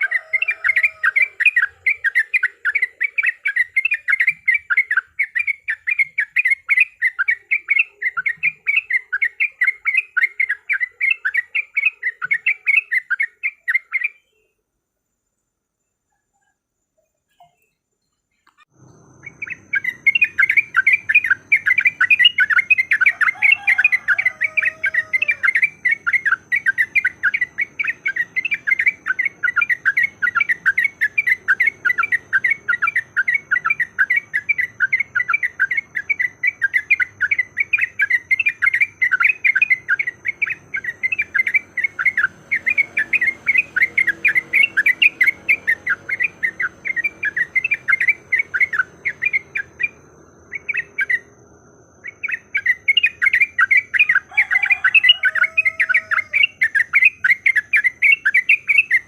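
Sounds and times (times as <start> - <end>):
bird rapid chatter: 0.0 - 14.2, 19.0 - 51.3
lower sliding bird call: 0.0 - 14.4, 18.7 - 51.3, 52.0 - 59.0.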